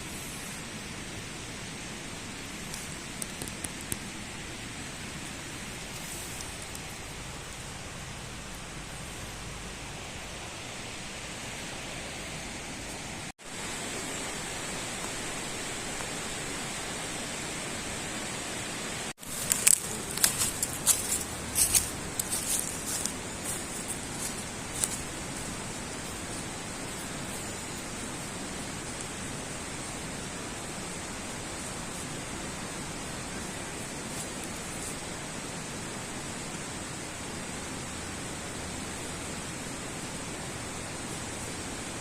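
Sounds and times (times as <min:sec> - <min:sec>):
steady outdoor hiss: 0:00.0 - 0:42.0
sharp crackles and clicks: 0:02.6 - 0:04.2, 0:19.2 - 0:25.0.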